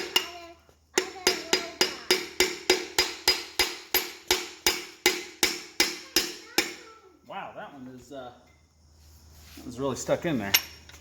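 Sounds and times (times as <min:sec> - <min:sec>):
hammer tapping on metal: 0:01.0 - 0:06.8.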